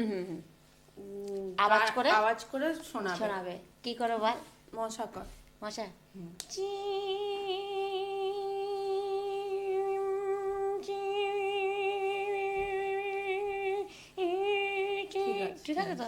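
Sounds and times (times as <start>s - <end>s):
woman humming high buzzing note: 6.2s - 16.0s.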